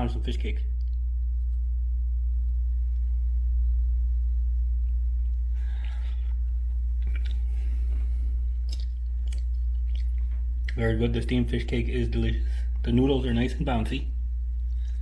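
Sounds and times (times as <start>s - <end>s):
low hum: 0.0s - 15.0s
person chewing: 4.8s - 10.8s.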